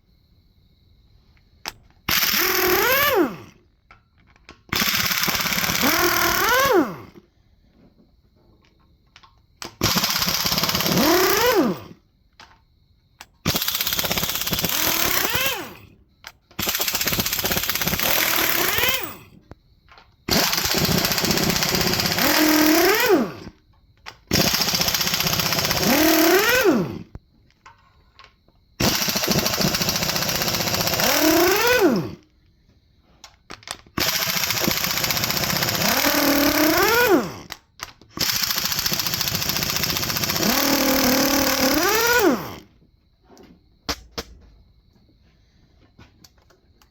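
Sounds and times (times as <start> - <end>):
impact wrench bursts: 2.1 - 3.6, 4.7 - 7.2, 9.7 - 12.0, 13.4 - 15.9, 16.6 - 19.4, 20.3 - 23.6, 24.3 - 27.1, 28.8 - 32.2, 33.9 - 37.6, 38.2 - 42.7.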